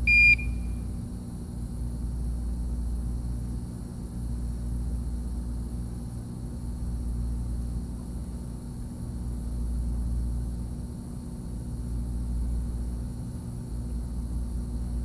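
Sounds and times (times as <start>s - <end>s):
small fan motor humming: 0.0s - 1.3s.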